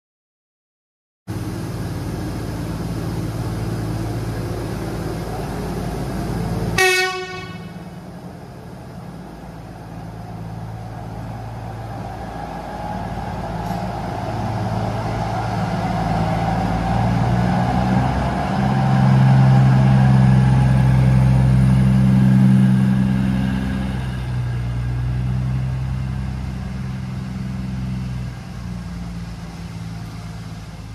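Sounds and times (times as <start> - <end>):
railbus engine hum: 1.3 - 30.9
train horn blast: 6.8 - 7.9.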